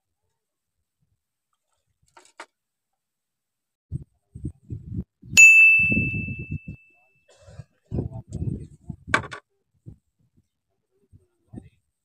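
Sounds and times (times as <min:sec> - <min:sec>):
bell-like ding: 0:05.4 - 0:07.0.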